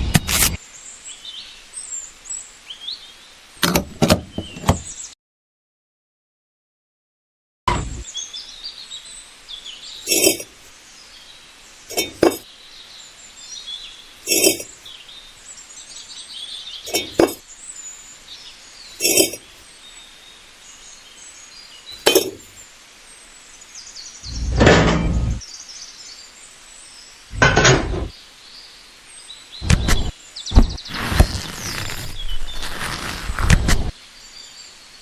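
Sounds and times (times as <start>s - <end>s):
faint chirping: 8.0s - 24.6s.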